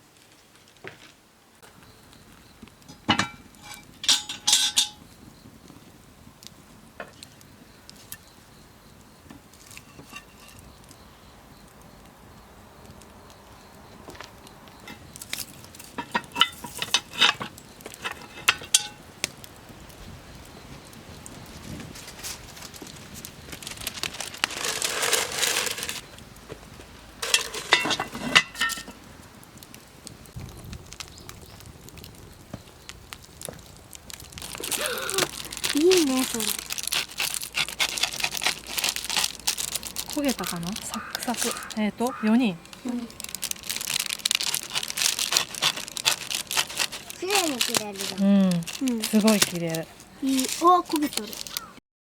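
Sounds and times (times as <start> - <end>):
charcoal crackling and scraping: 0.0 - 51.8
metallic lid clanks: 2.9 - 5.0.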